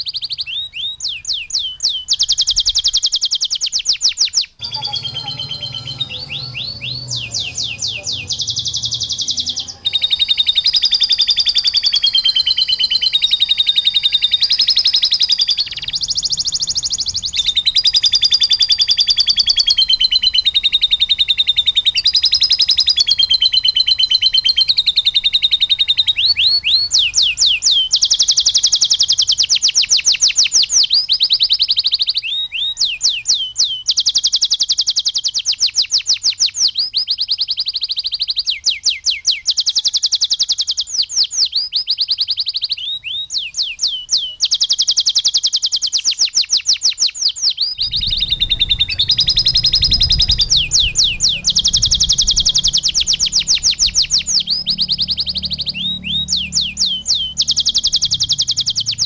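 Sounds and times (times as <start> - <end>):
canary singing trills: 0.0 - 59.0
low rumble: 47.8 - 59.0.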